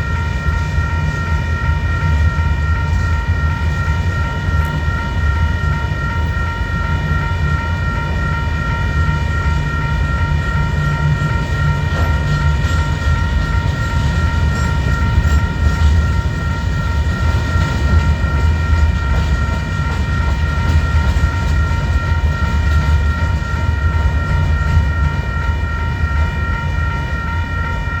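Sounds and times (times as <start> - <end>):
freight train rumbling on rails: 0.0 - 28.0
high-pitched ringing tone: 0.0 - 28.0.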